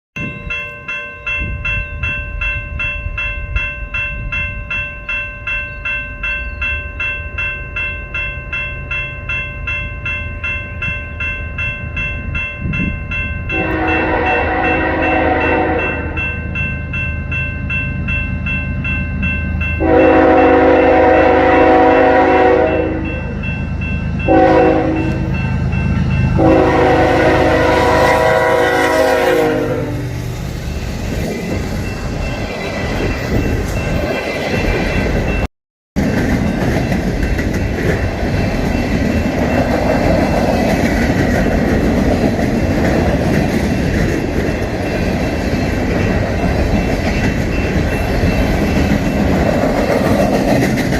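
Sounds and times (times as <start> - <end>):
train rumble: 0.2 - 50.9
locomotive horn blasts: 13.5 - 16.3, 19.8 - 23.3, 24.3 - 25.3, 26.4 - 30.2
train wheel clatter: 30.3 - 50.9.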